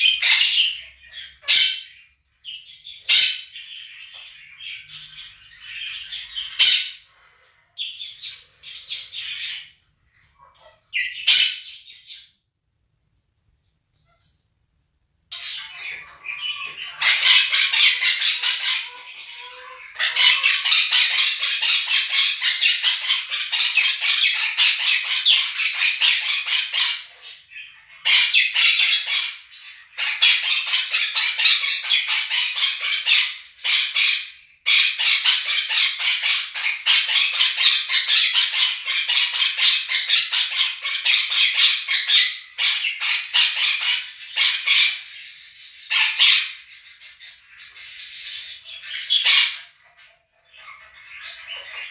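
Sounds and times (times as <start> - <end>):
budgerigars warbling: 0.0 - 7.2, 7.8 - 12.3, 15.3 - 51.9
parrots screeching and chattering: 0.0 - 12.4, 15.3 - 51.9.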